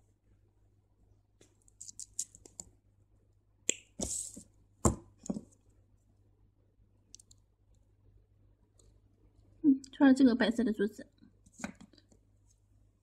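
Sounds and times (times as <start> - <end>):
beads clicking: 1.6 - 2.6.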